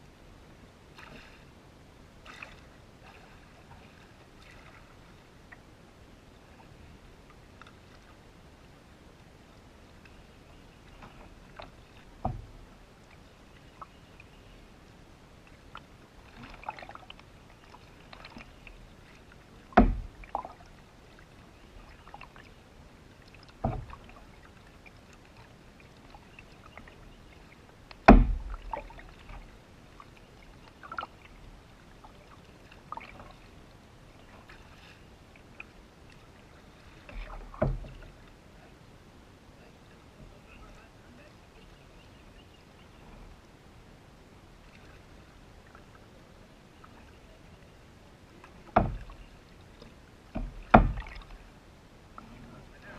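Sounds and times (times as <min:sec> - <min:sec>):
canoe paddling: 0:00.0 - 0:52.9
faint clicks: 0:07.2 - 0:08.1
sharp knocks against boat: 0:11.0 - 0:12.6, 0:19.7 - 0:20.6, 0:23.6 - 0:24.2, 0:27.9 - 0:29.5, 0:37.0 - 0:38.2, 0:48.4 - 0:49.3, 0:50.3 - 0:51.4.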